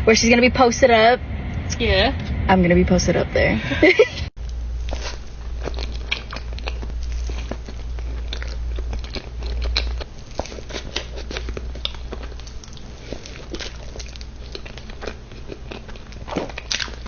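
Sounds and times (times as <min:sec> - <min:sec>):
steady low hum: 0:00.0 - 0:17.0
crunchy chewing: 0:04.5 - 0:17.0.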